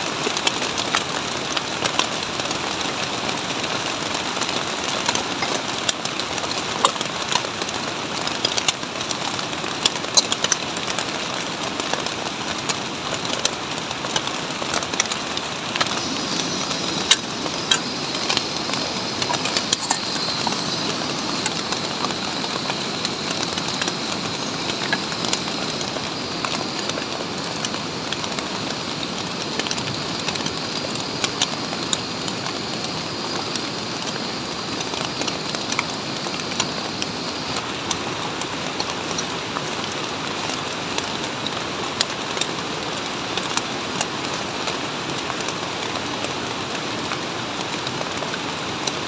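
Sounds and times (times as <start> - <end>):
heavy rain falling: 0.0 - 49.0
raindrops tapping close by: 0.0 - 49.0.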